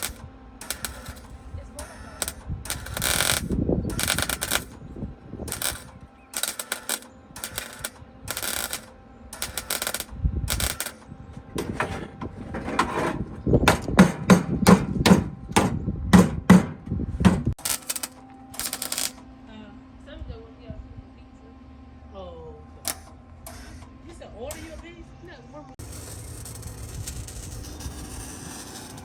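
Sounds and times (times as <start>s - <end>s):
welding arc crackle: 0.0s - 4.8s, 5.4s - 11.1s, 17.5s - 19.2s, 25.8s - 29.0s.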